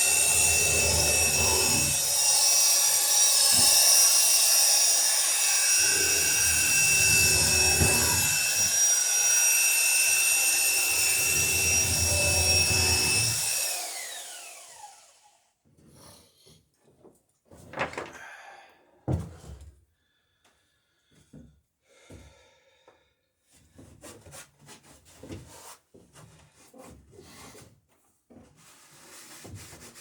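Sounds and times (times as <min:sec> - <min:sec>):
drill motor spinning down: 0:00.0 - 0:15.4
electric drill whining: 0:00.0 - 0:15.4.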